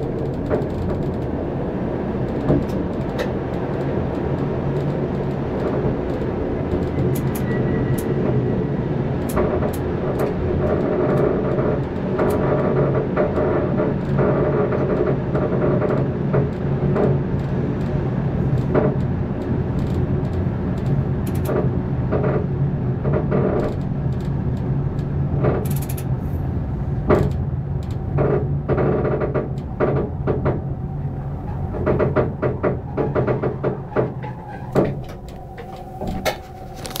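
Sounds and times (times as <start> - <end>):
wheels clicking on track: 0.0 - 37.0
electric train humming: 29.6 - 37.0.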